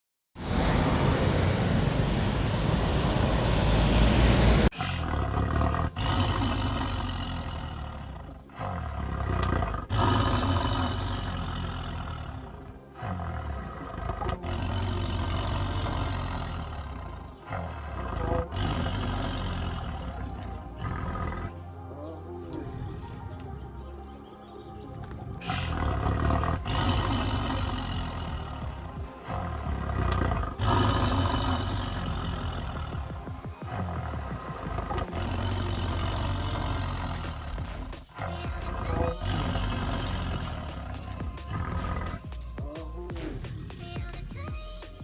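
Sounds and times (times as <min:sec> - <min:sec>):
trucks driving past: 0:00.4 - 0:05.2, 0:14.7 - 0:38.1.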